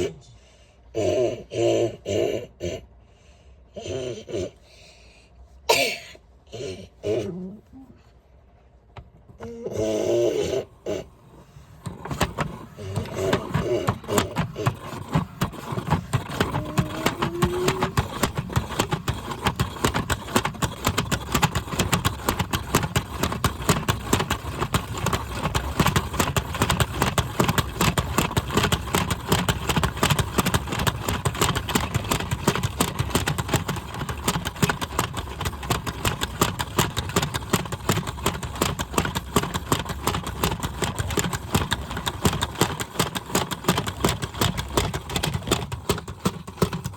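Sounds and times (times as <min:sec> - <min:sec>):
washing machine rattling: 0:11.8 - 0:46.9.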